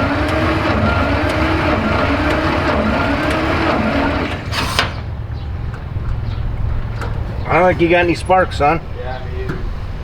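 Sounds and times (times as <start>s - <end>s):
starter motor cranking engine: 0.0s - 5.2s.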